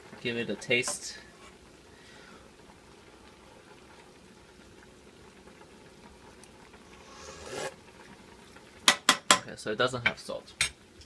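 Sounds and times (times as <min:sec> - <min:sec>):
slurp from a spoon: 0:07.0 - 0:07.8.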